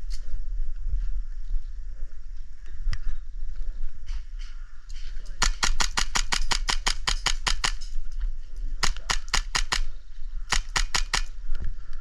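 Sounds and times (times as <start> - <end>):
airsoft gun rapid firing: 5.4 - 7.8, 8.8 - 11.4.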